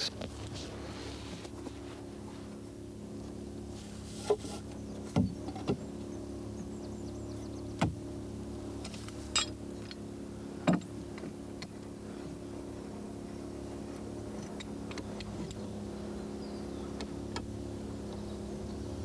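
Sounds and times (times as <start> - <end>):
mechanical hum: 0.0 - 19.0.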